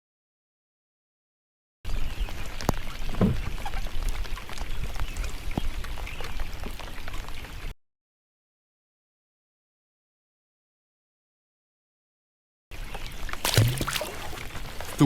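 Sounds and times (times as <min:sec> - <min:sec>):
water splashing and dripping: 0:02.3 - 0:07.7, 0:12.9 - 0:15.0.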